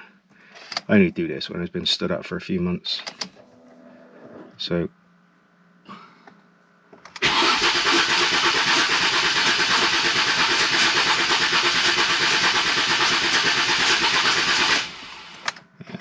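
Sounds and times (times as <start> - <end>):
starter motor cranking engine: 7.1 - 15.6.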